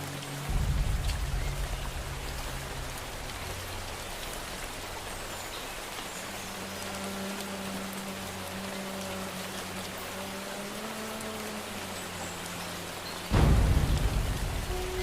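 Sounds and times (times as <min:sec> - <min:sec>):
steady rainfall hissing: 0:00.0 - 0:15.0
low rumble: 0:00.4 - 0:05.7, 0:13.3 - 0:15.0.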